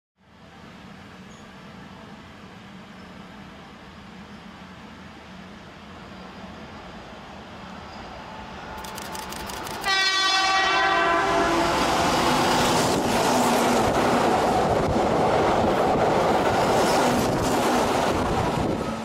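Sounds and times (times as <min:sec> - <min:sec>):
train wheels running past: 0:00.3 - 0:19.0
train horn blast: 0:09.8 - 0:12.6.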